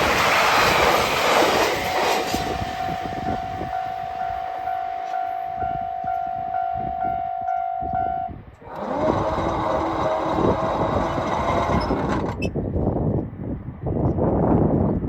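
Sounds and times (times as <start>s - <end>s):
train rushing past: 0.0s - 12.4s
steady high tone: 1.9s - 8.4s.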